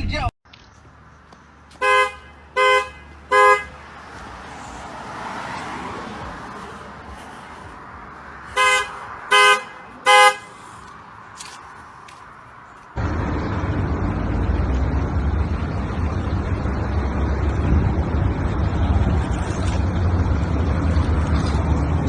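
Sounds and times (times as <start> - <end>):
road traffic noise: 0.0 - 22.0
vehicle horn honking: 1.8 - 3.8, 8.5 - 10.6.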